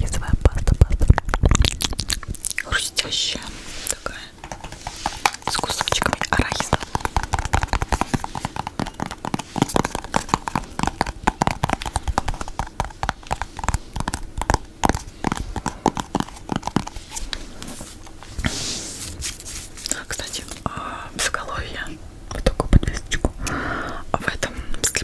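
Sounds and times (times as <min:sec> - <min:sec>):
wet tongue clicks: 0:00.0 - 0:02.7, 0:05.2 - 0:17.0
lip smacks: 0:00.0 - 0:02.8, 0:03.9 - 0:18.2.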